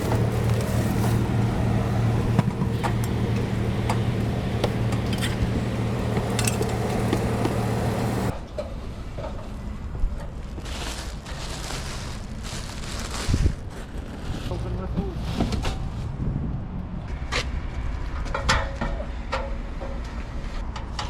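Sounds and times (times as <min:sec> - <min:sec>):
machine humming: 0:00.0 - 0:08.3
sharp clicks and knocks: 0:00.0 - 0:08.3.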